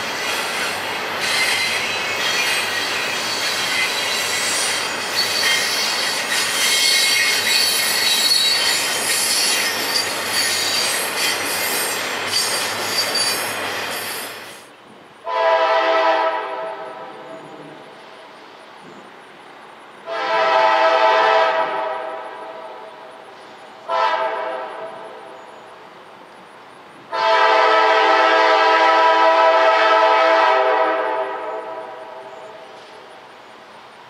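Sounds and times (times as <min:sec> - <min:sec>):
steel wheels squealing: 0:00.0 - 0:14.7
freight train rail noise: 0:00.0 - 0:34.0
locomotive horn chord: 0:15.3 - 0:16.9, 0:27.1 - 0:31.7.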